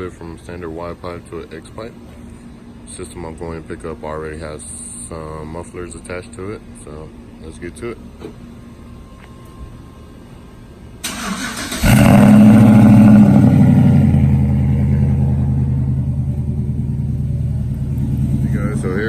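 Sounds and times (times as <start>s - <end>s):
truck engine idling: 7.8s - 19.0s
starter motor cranking: 11.0s - 14.0s.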